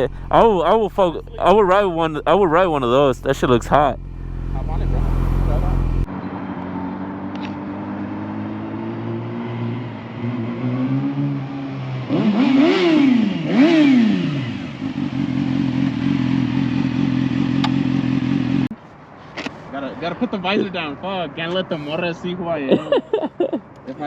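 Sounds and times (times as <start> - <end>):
motorcycle engine idling and revving: 0.0 - 18.7.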